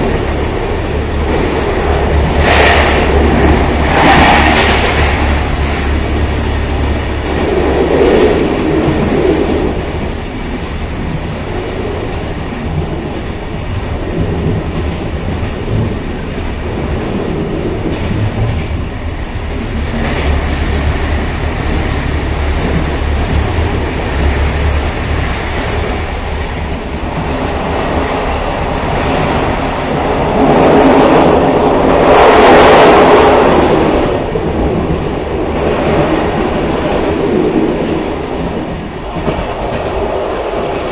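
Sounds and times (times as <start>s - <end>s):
railcar rumbling on track: 0.0s - 40.9s.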